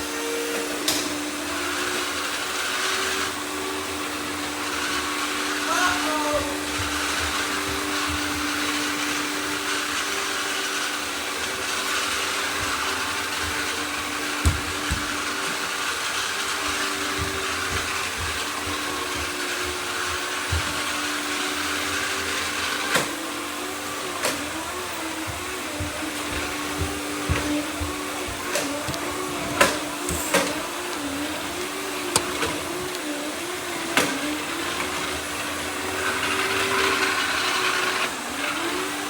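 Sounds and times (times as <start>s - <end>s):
robot vacuums whirring: 0.0s - 39.0s
sharp knocks: 12.5s - 15.6s.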